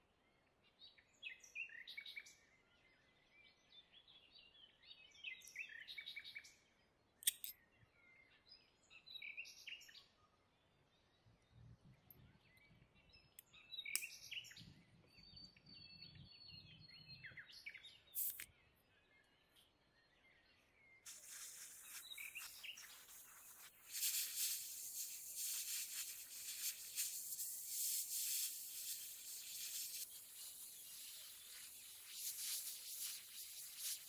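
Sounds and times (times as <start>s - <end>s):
faint birdsong chirps: 0.0s - 34.0s
sharp clicks: 7.2s - 7.5s, 18.2s - 18.5s.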